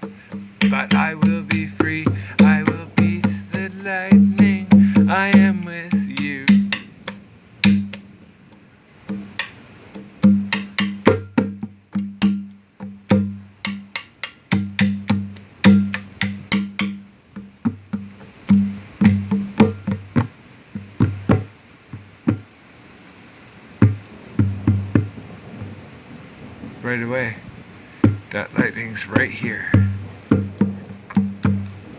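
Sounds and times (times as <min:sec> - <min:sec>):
conga drum hand strokes: 0:00.0 - 0:08.2, 0:09.1 - 0:22.5, 0:28.0 - 0:31.9.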